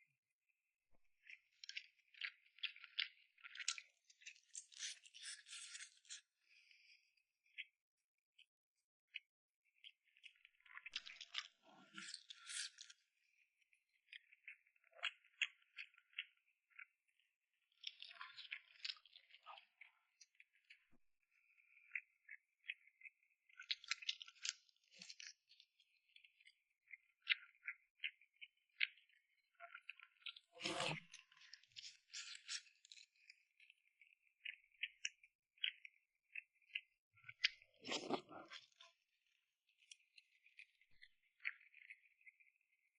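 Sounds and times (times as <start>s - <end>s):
wet chewing and mouth clicks: 1.4s - 6.3s, 10.1s - 13.0s, 14.1s - 16.9s, 17.8s - 20.8s, 21.6s - 39.0s, 39.8s - 42.4s
crunchy chewing: 10.6s - 12.9s, 36.7s - 38.9s.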